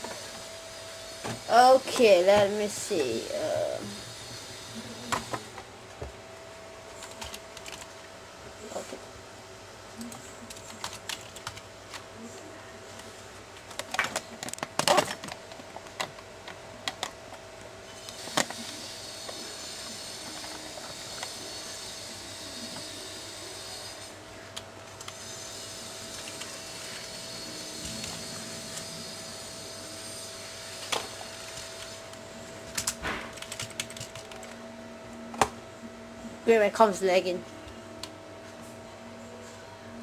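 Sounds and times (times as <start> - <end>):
faint constant whine: 0.0 - 40.0
computer keyboard typing: 7.0 - 7.9, 10.0 - 12.0, 32.8 - 34.6.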